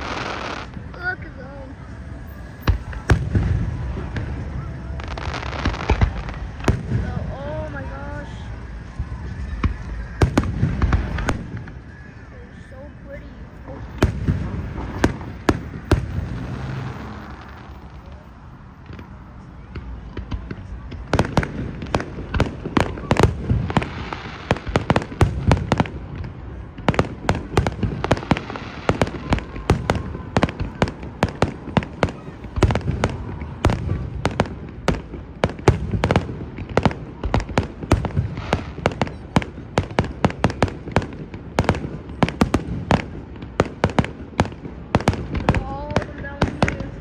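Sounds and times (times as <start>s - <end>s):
fireworks bangs and crackles: 0.0s - 47.0s.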